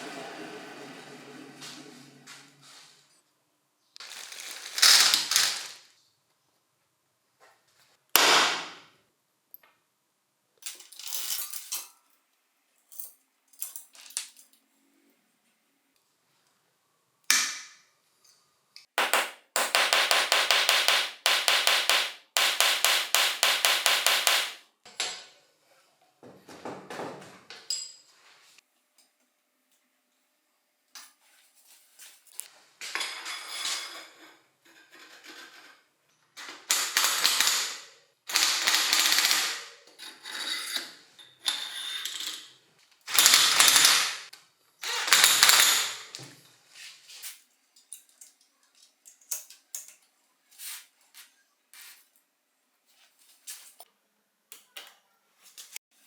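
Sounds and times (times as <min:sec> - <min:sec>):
noisy bursts from bike work: 0:00.0 - 0:03.1
ratchet clicking rapidly: 0:19.0 - 0:24.6.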